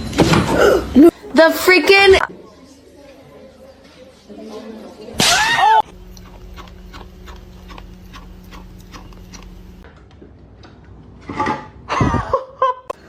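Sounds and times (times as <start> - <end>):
low steady hum: 5.8 - 9.9
faint regular ticking: 5.9 - 9.8.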